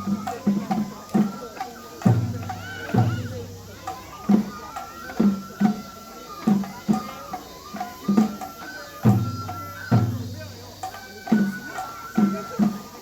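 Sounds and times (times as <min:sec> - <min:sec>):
drum struck in uneven rhythm: 0:00.0 - 0:13.0
high held wind instrument melody: 0:00.0 - 0:13.0.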